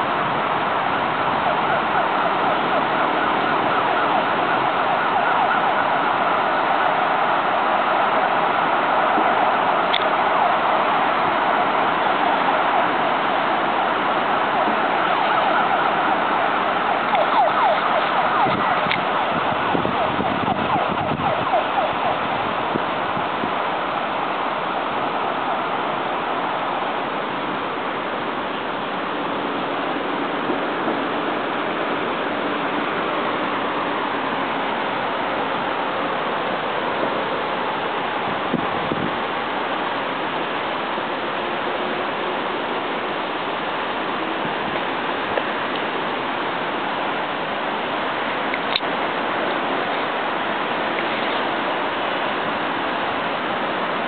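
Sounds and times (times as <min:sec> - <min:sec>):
city traffic noise: 0:00.0 - 0:54.0
siren rising and falling: 0:00.6 - 0:23.5.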